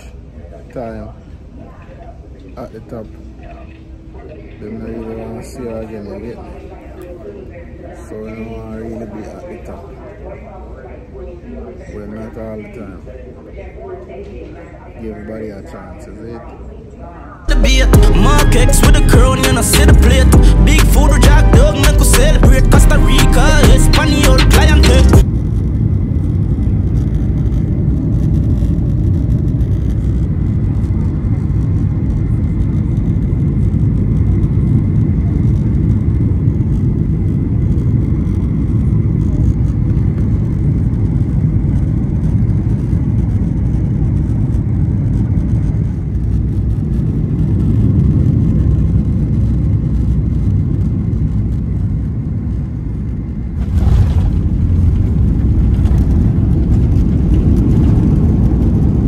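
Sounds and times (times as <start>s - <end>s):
vehicle rumble from inside: 53.6s - 59.0s.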